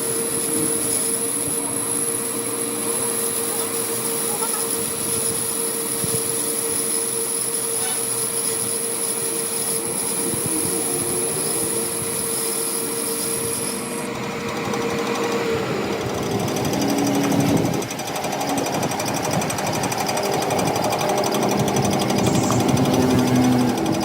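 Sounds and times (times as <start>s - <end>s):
machine hum: 8.9s - 24.0s
high whine: 18.7s - 24.0s
scraping on metal: 21.4s - 24.0s.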